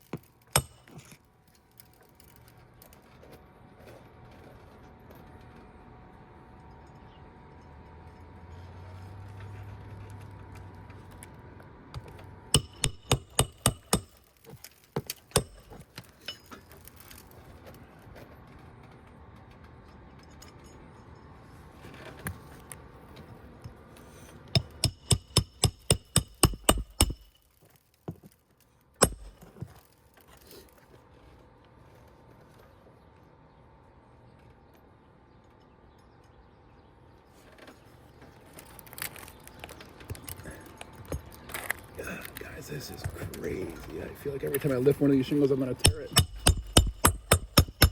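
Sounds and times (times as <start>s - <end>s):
hammer blows on shingle roof: 0.0s - 1.1s, 12.6s - 14.3s, 15.0s - 16.0s, 24.6s - 27.4s, 29.0s - 29.7s, 45.6s - 47.9s.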